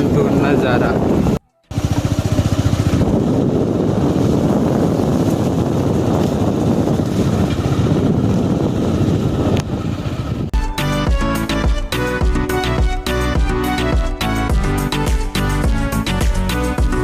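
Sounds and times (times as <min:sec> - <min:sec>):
vehicle engine running: 0:00.0 - 0:10.5.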